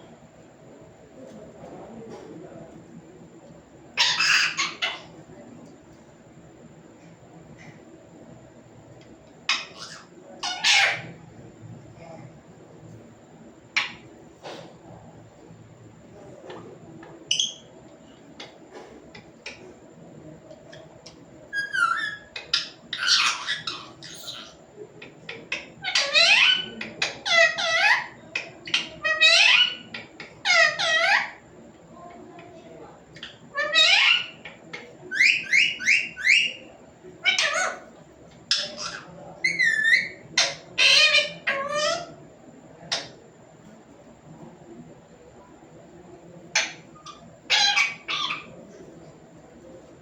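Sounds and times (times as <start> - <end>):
parrot calling: 4.0 - 5.1, 9.4 - 11.2, 13.7 - 14.1, 17.3 - 17.7, 21.0 - 31.4, 33.1 - 42.2, 42.9 - 43.2, 46.5 - 48.7
parrot chirping: 4.0 - 5.1, 9.5 - 11.2, 17.3 - 17.7, 21.0 - 31.4, 33.1 - 37.9, 38.5 - 42.2, 46.5 - 48.6.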